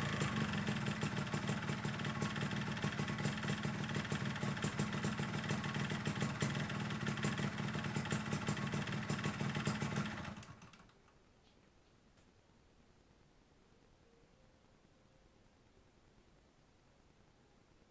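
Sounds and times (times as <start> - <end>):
two-stroke motorcycle idling: 0.0 - 10.8.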